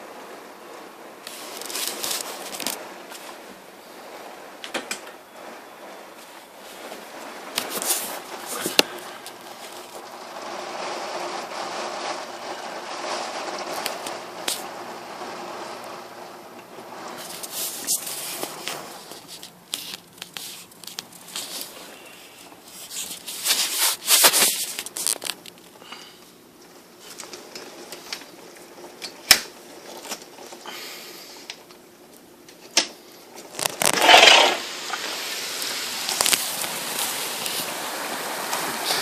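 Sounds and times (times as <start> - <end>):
rain pattering on hard surface: 0.0 - 39.0
loud rush: 33.8 - 39.0.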